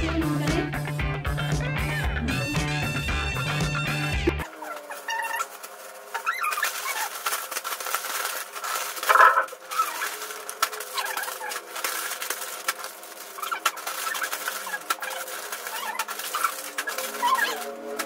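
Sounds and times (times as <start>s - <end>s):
plastic snack packets crinkling: 4.4s - 18.0s
bird calling: 9.1s - 10.1s.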